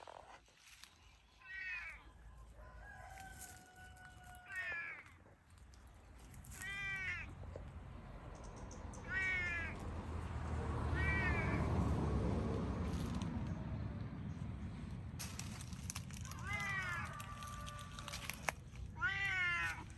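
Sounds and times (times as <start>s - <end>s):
cat meowing: 6.5s - 7.4s, 9.0s - 9.8s, 10.9s - 11.6s, 16.2s - 18.1s, 18.9s - 19.9s.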